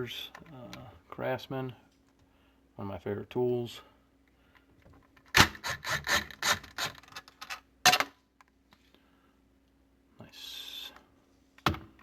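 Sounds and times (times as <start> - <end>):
nut driver scraping a screw: 5.6 - 7.2.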